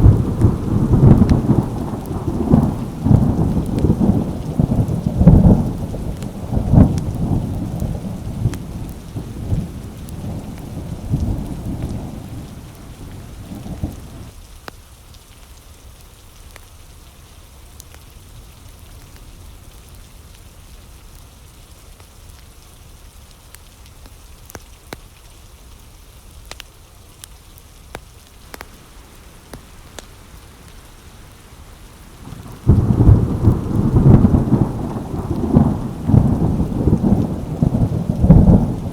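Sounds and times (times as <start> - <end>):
loud thunder clap: 0.0 - 14.3, 32.0 - 38.9
thunder rumbling: 0.0 - 14.3, 28.5 - 38.9
raindrop ticks: 0.0 - 16.8, 23.4 - 25.3, 26.4 - 38.9
steady rain: 0.0 - 38.9.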